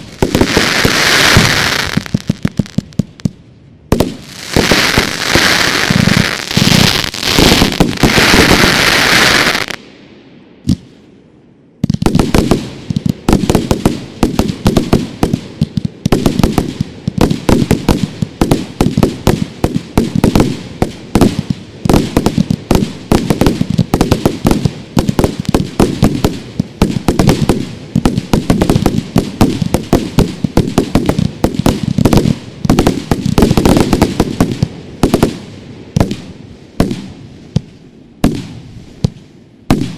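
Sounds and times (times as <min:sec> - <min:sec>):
fireworks hissing crackle: 0:00.0 - 0:09.8
fireworks bangs and crackles: 0:00.0 - 0:09.9, 0:10.6 - 0:11.0, 0:11.8 - 0:39.9.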